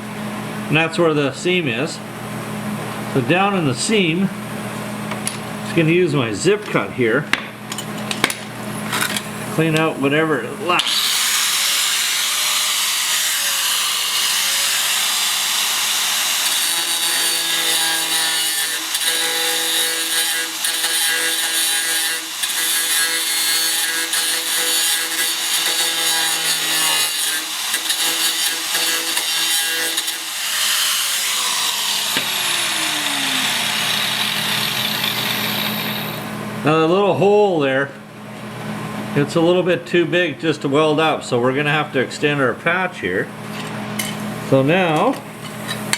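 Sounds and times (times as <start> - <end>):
cut-off tool grinding metal: 10.8 - 36.2.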